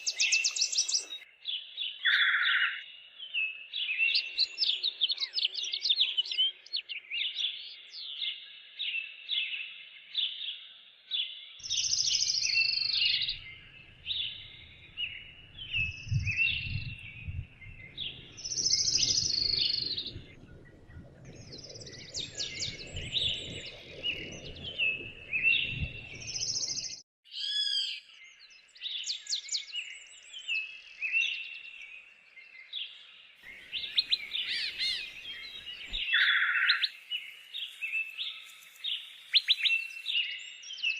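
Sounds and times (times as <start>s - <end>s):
songbirds singing and chirping: 0.0s - 40.9s
low rumble: 13.4s - 26.8s.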